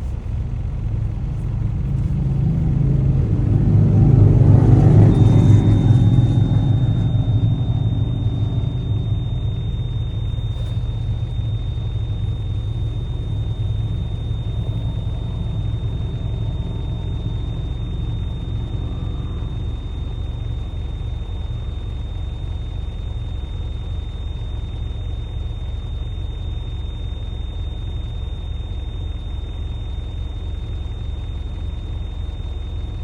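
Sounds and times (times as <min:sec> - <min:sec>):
truck engine idling: 0:00.0 - 0:33.0
faint high tone: 0:02.5 - 0:22.1.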